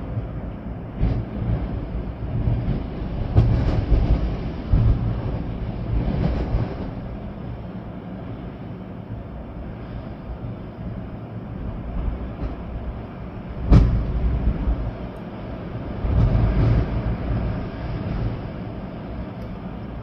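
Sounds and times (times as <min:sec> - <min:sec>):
rain: 0:00.0 - 0:20.0
storm wind gusting: 0:00.0 - 0:20.0.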